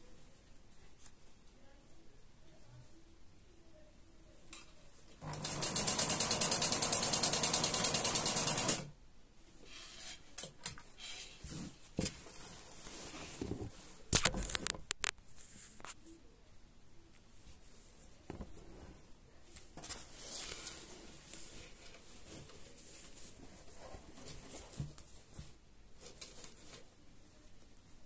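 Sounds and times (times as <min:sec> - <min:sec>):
sewing machine stitching: 0:05.2 - 0:08.9.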